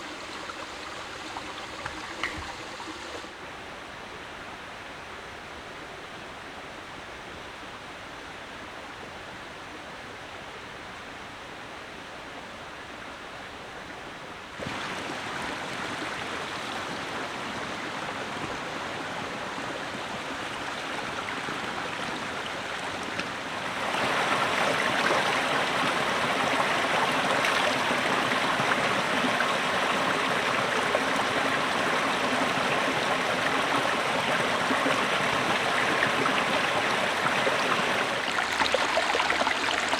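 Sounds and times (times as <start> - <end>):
flowing water rushing: 0.0 - 3.4, 14.6 - 39.9.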